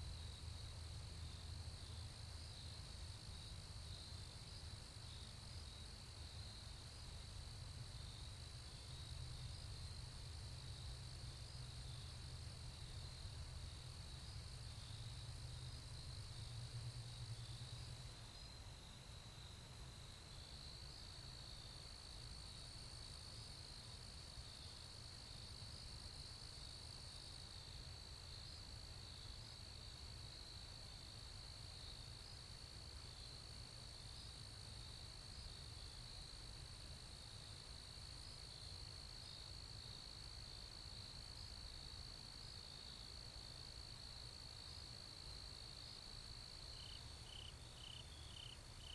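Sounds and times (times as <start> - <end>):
insects trilling: 37.1 - 48.9.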